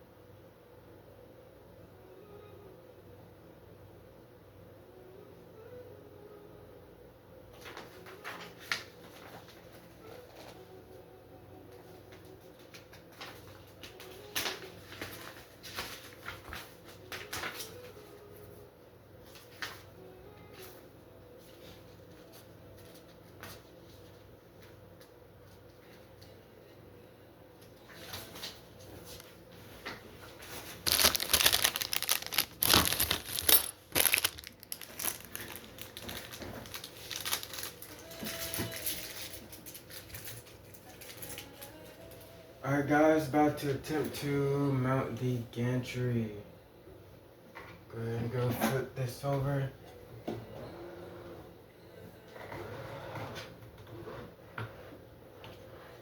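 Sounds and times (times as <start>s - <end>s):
packaging rustling: 30.5s - 41.8s.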